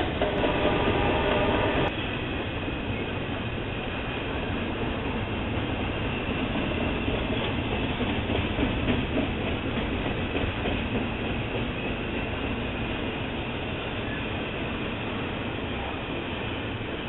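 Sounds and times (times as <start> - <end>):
steel wheels on rail: 0.0 - 17.0
wheels clickety-clack: 4.8 - 13.2.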